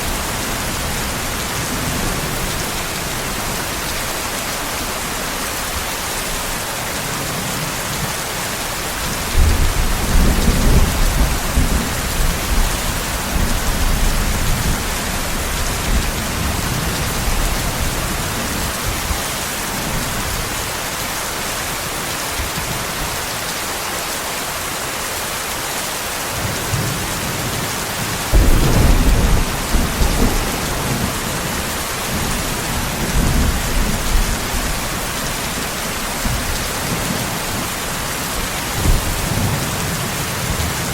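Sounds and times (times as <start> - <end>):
steady heavy rain: 0.0 - 40.9
rolling thunder: 28.2 - 35.6, 38.4 - 40.9.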